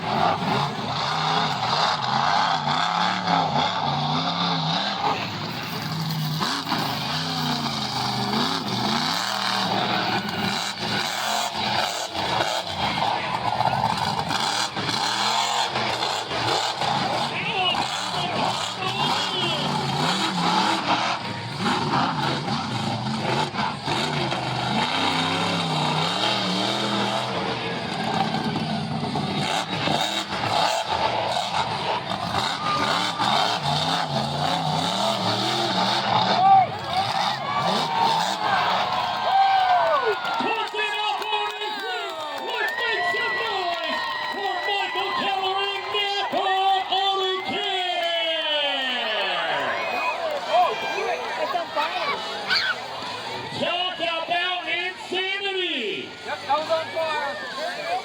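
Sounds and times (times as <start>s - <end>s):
monster truck engine revving: 0.0s - 58.0s.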